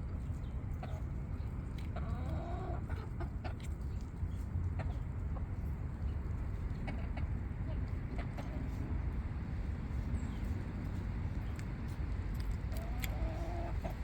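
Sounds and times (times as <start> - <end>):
chickens clucking: 0.3 - 5.6, 6.6 - 8.9, 12.7 - 14.0.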